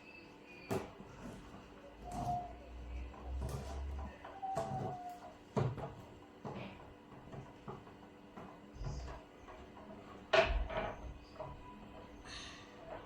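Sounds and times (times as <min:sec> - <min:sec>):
knocks and clacks of handling: 0:03.1 - 0:12.2.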